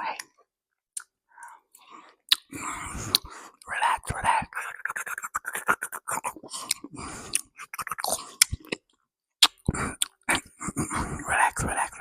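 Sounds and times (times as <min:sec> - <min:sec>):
chewing and wet mouth sounds: 0:01.0 - 0:03.7, 0:04.5 - 0:11.0.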